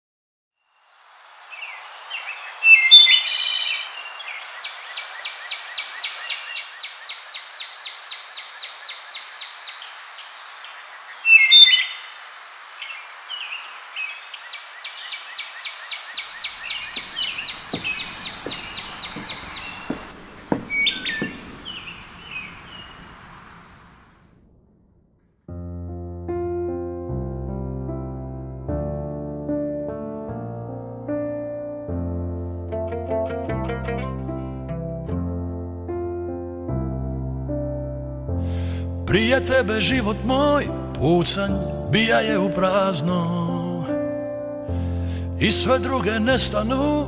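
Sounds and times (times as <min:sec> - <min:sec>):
outdoor hiss: 0:00.7 - 0:24.4
small birds chirping and trilling: 0:01.4 - 0:24.2
low knocks: 0:16.8 - 0:22.3.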